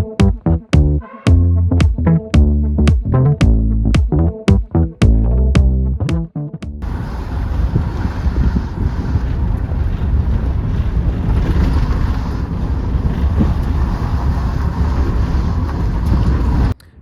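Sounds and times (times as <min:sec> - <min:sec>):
vehicle rumbling on road: 0:06.8 - 0:16.8
wind noise on microphone: 0:06.8 - 0:17.0.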